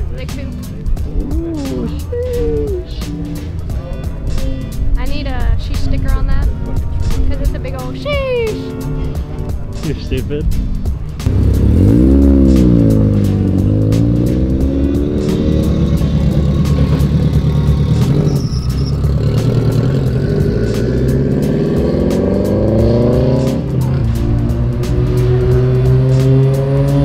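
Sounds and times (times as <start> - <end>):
background music with a beat: 0.0 - 27.0
sports car engines revving: 10.0 - 27.0.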